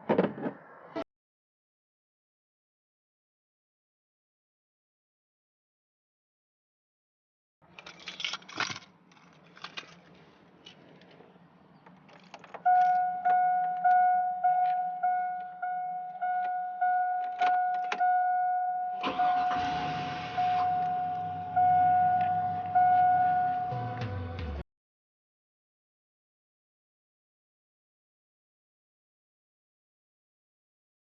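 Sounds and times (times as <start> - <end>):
keys jingling: 7.7 - 10.0, 16.4 - 18.0
truck engine starting and idling: 12.2 - 24.6
truck warning chime pinging: 12.6 - 23.9.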